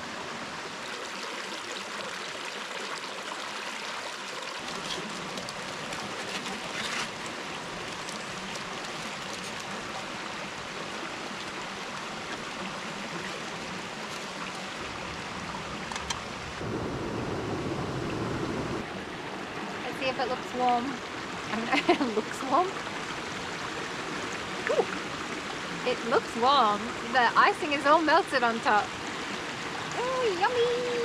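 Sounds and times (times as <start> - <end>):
rain falling: 4.6 - 31.0.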